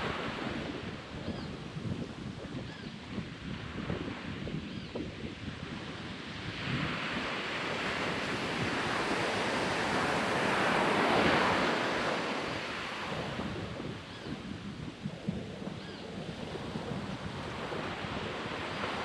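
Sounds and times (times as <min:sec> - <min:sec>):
wind buffeting microphone: 0:00.0 - 0:19.0
ocean wave on beach: 0:06.4 - 0:13.8, 0:16.6 - 0:19.0.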